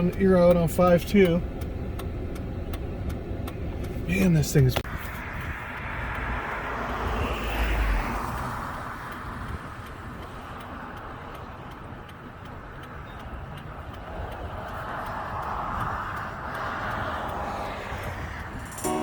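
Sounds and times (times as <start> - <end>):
faint ticking: 0.0 - 4.5, 9.1 - 18.6
road and wind noise inside vehicle: 0.0 - 19.0.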